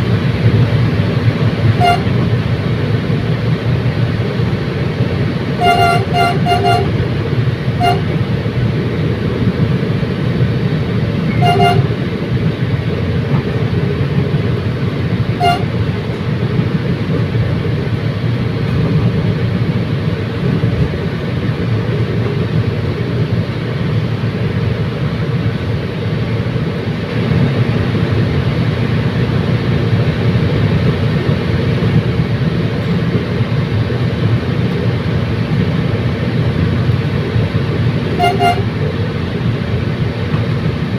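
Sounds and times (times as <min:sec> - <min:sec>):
train rumbling: 0:00.0 - 0:40.9
train horn toots: 0:01.7 - 0:02.3, 0:05.6 - 0:07.2, 0:07.8 - 0:08.2, 0:11.3 - 0:12.1, 0:15.4 - 0:15.9, 0:38.1 - 0:39.0.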